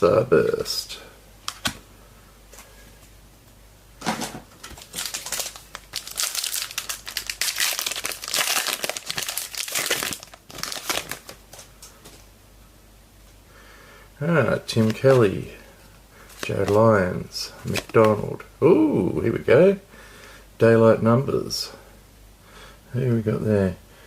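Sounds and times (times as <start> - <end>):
wrapper tearing and crinkling: 4.6 - 11.7.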